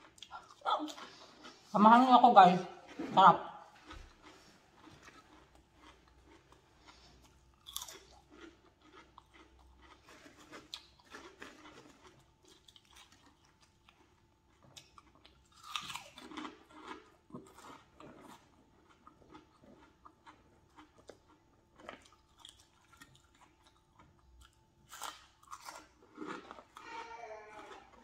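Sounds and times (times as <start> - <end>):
person crunching chips: 3.8 - 28.0.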